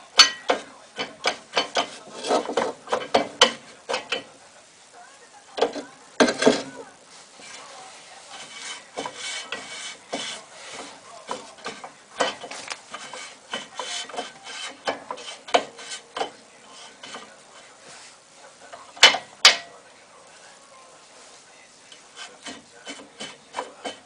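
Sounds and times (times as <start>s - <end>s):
scraping and rubbing on brake: 0.0s - 4.3s, 5.6s - 19.3s, 21.0s - 24.0s
clicks and knocks: 0.2s - 4.3s, 8.4s - 17.4s, 18.8s - 19.8s.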